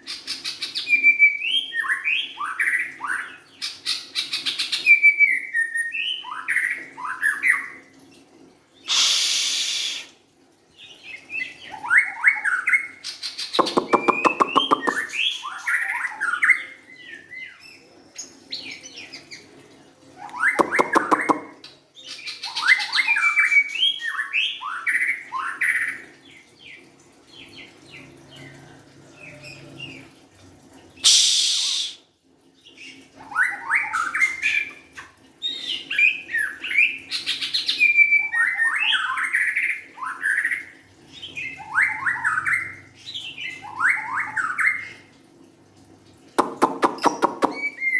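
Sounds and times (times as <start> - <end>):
bird singing whistled phrases: 8.9 - 10.1, 31.0 - 32.0
loud hissing bursts: 8.9 - 10.1, 31.0 - 32.0
buzzy rattling bird phrase: 13.6 - 15.2.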